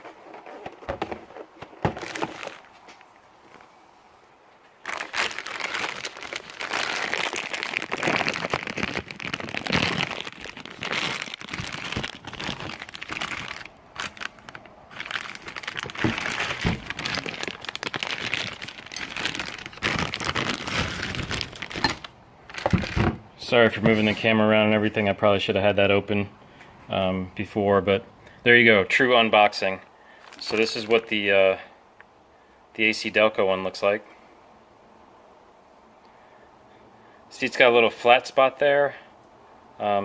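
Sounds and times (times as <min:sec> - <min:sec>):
packaging crinkling and tearing: 0:00.0 - 0:03.1, 0:04.8 - 0:23.2, 0:30.2 - 0:31.0.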